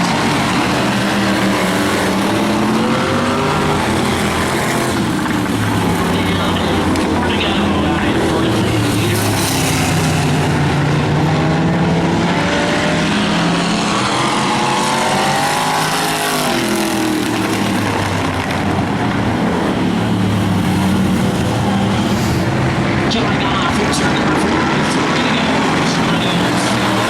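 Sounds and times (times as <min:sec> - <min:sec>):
car passing close: 0:00.0 - 0:27.0
race car engines running: 0:00.0 - 0:27.0.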